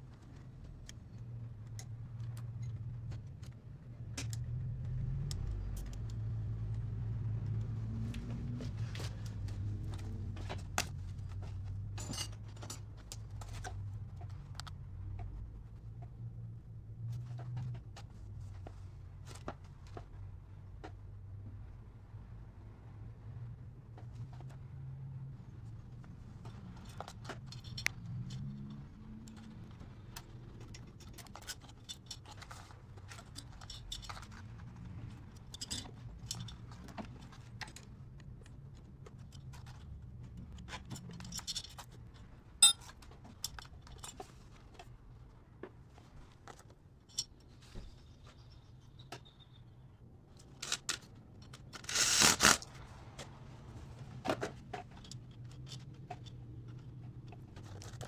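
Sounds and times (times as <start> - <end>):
metal tools clicking and clinking: 12.0 - 12.9, 42.6 - 42.9.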